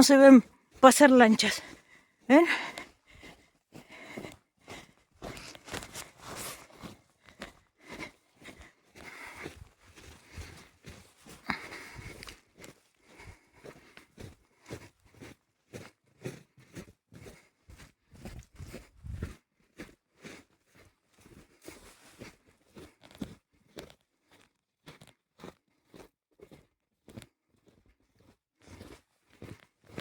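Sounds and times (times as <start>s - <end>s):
footsteps crunching through snow: 5.2s - 7.0s.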